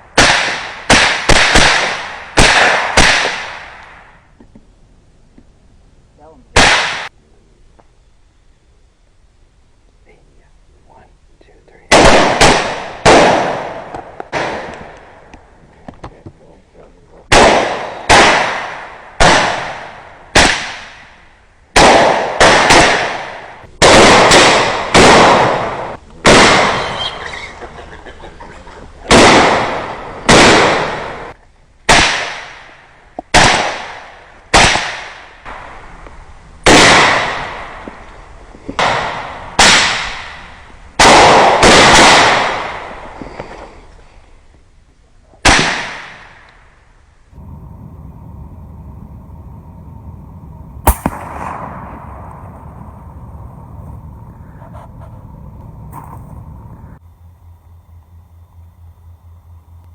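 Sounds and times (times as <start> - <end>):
rapid gunfire with echo: 47.4 - 57.0.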